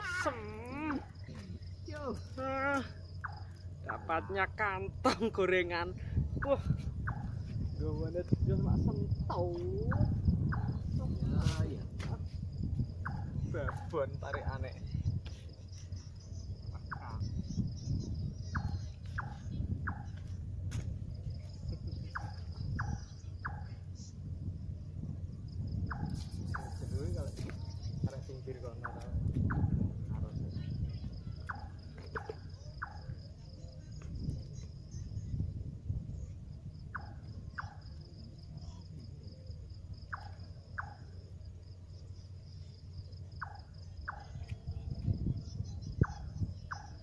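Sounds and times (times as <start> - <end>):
night animal calls: 0.0 - 5.0, 6.4 - 7.5, 9.2 - 11.3, 12.9 - 14.7, 15.6 - 20.4, 21.5 - 24.2, 25.7 - 29.9, 30.7 - 34.0, 36.8 - 47.0
low rumble: 0.0 - 43.3
crickets trilling: 0.0 - 47.0
insects droning: 0.0 - 47.0.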